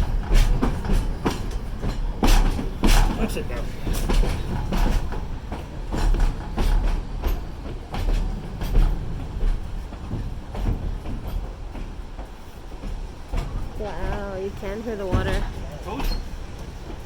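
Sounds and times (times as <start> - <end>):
train car rumbling on track: 0.0 - 17.0
wheels knocking and clanking: 0.0 - 17.0.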